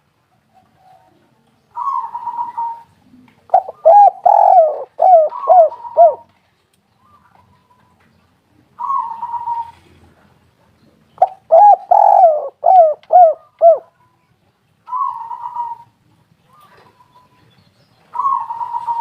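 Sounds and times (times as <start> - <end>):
dove cooing: 1.8 - 6.3, 8.8 - 10.0, 11.2 - 14.0, 14.9 - 17.3, 18.1 - 19.0.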